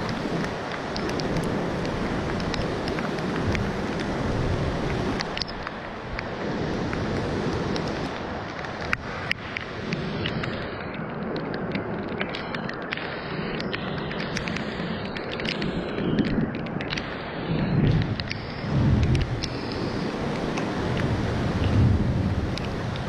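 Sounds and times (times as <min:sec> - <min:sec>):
sharp ticks: 0:00.0 - 0:04.2, 0:04.8 - 0:23.0
wind and rain rushing: 0:00.0 - 0:23.0
wind buffeting microphone: 0:00.0 - 0:23.0.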